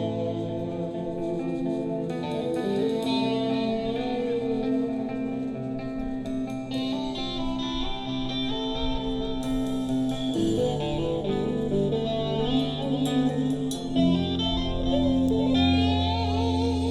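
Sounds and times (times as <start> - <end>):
guitar solo: 0.0 - 16.9
light cymbals: 0.0 - 16.9
held bass notes: 10.4 - 16.9.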